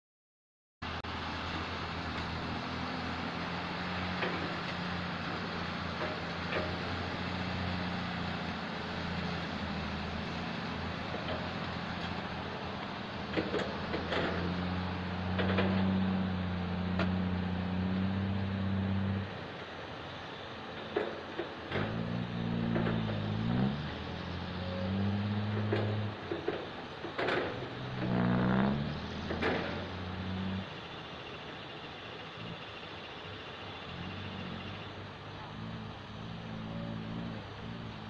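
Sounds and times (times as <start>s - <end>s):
heavy diesel engine running: 0.8s - 38.0s
metal clanks and knocks: 25.6s - 27.7s.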